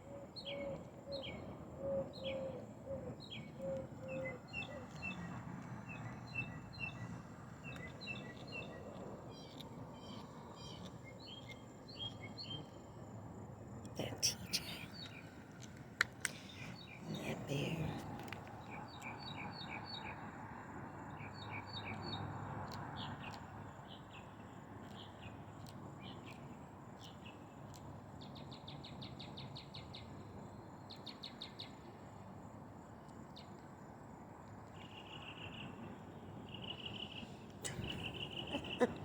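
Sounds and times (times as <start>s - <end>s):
low steady background noise: 0.0s - 39.0s
small birds chirping: 3.2s - 12.8s, 13.8s - 20.2s, 36.4s - 39.0s.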